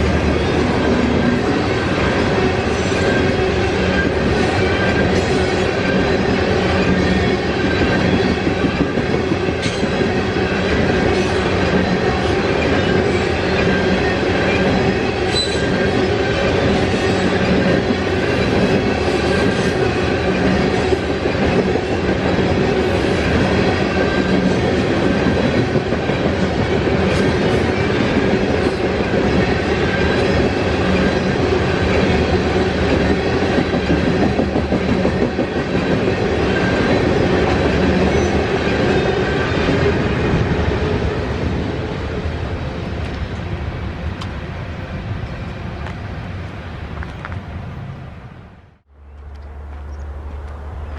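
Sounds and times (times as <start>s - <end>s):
train wheels clattering on rails: 0.0s - 44.5s
faint wheel squeal: 15.3s - 15.8s.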